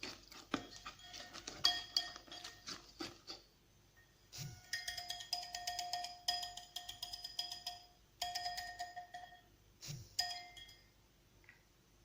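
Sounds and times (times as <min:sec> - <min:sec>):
utensil clinking against bowl: 0:00.0 - 0:03.4, 0:04.6 - 0:09.4, 0:10.2 - 0:10.8.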